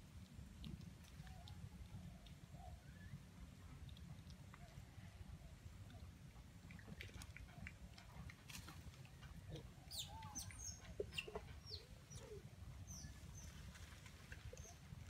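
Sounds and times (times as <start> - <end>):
low clucking bird notes: 9.2 - 15.0.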